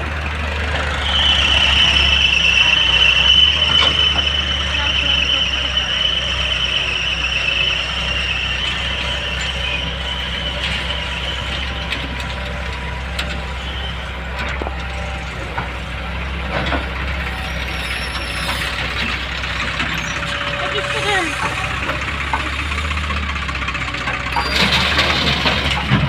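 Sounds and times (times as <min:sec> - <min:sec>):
diesel engine running: 0:00.0 - 0:26.0
metal clanks and knocks: 0:21.3 - 0:26.0.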